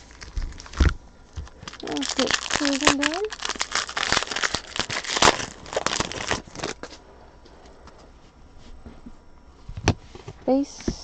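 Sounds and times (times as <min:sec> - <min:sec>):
wrapper crinkling and tearing: 0:00.0 - 0:07.0.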